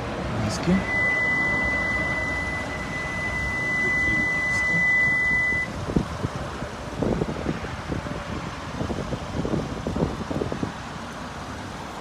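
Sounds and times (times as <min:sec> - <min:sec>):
high-pitched electronic beep: 0:00.7 - 0:05.7.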